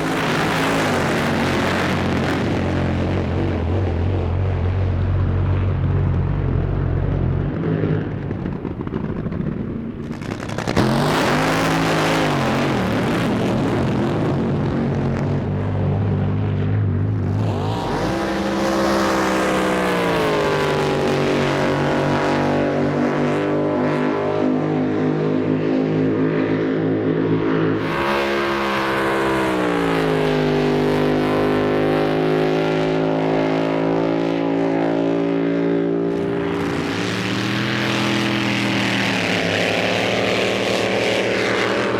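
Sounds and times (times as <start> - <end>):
drag boat engines roaring: 0.0 - 41.9.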